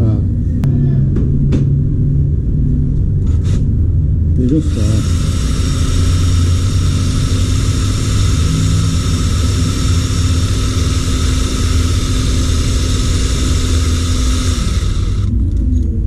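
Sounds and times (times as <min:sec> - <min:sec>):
angle grinder wire brush whining: 0:04.4 - 0:15.4.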